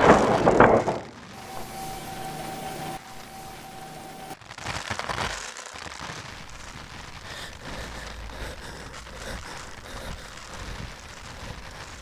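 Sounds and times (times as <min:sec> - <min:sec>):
hiss of falling rain: 0:05.2 - 0:12.0.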